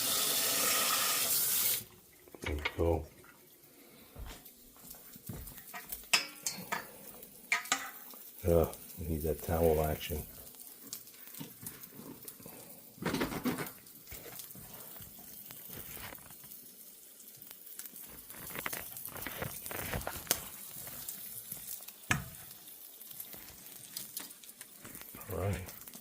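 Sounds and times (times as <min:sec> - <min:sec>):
ham sizzling in a frying pan: 0:00.0 - 0:26.0
kitchen clatter: 0:05.6 - 0:08.1, 0:13.0 - 0:13.8
scraping in a pan: 0:15.6 - 0:16.4, 0:18.0 - 0:21.1.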